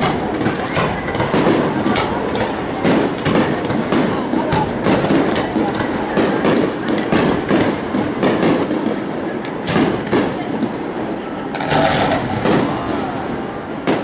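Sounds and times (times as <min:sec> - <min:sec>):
crowd voices: 0:00.0 - 0:14.0
fireworks bangs and pops: 0:00.0 - 0:14.0
fireworks crackling: 0:00.0 - 0:14.0.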